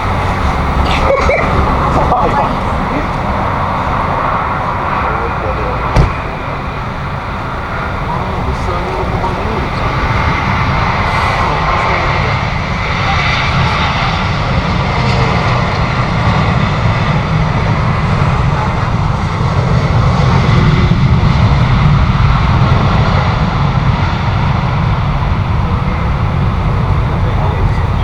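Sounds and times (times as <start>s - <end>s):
jet airliner engines: 0.0s - 28.0s.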